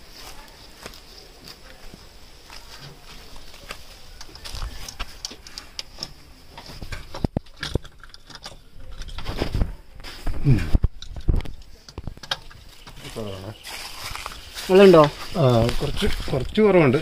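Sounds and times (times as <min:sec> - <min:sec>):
hands handling metal parts: 0:02.5 - 0:10.3.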